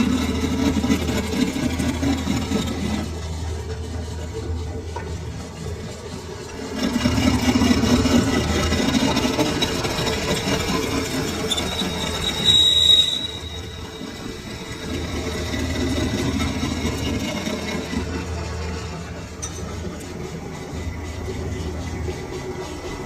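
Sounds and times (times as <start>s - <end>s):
lathe cutting metal: 0.0s - 23.0s
high squeal: 9.5s - 15.7s.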